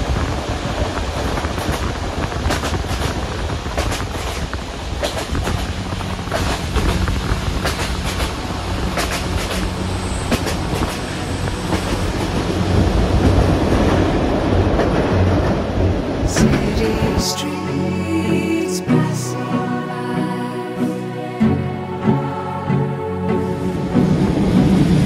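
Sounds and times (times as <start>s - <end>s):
train running on rails: 0.0s - 25.0s
wheels clicking over rail joints: 0.2s - 16.5s.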